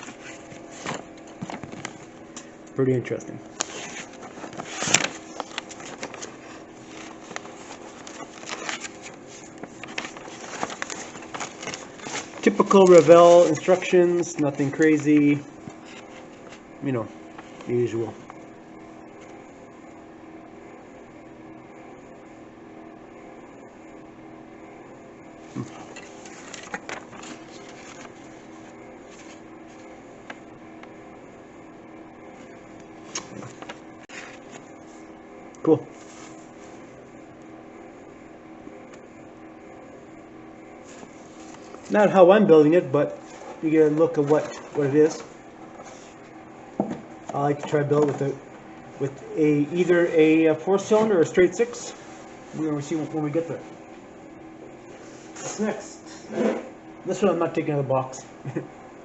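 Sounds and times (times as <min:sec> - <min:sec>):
handling taps and rustles: 0:00.0 - 0:02.5, 0:43.3 - 0:48.4
paper booklet rustling: 0:00.0 - 0:02.5, 0:03.5 - 0:16.7, 0:25.5 - 0:30.4, 0:32.4 - 0:35.1, 0:35.9 - 0:37.0, 0:40.8 - 0:53.8
steady mechanical hum: 0:00.0 - 0:59.0.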